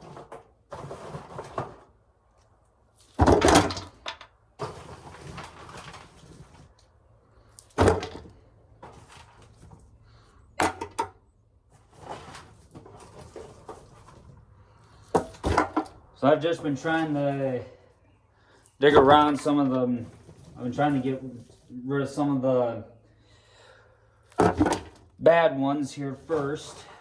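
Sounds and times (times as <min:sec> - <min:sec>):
corn ears dropping into a pail: 0:00.0 - 0:02.0, 0:03.0 - 0:06.7, 0:07.6 - 0:09.8, 0:10.6 - 0:11.1, 0:14.9 - 0:17.4, 0:18.8 - 0:21.6, 0:24.3 - 0:25.4
rustling of corn ears: 0:04.6 - 0:06.8, 0:11.7 - 0:15.2, 0:18.8 - 0:22.4, 0:25.3 - 0:27.0.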